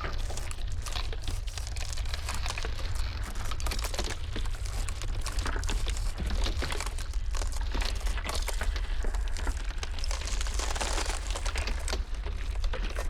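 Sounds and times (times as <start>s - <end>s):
ice cracking: 0.0s - 13.0s.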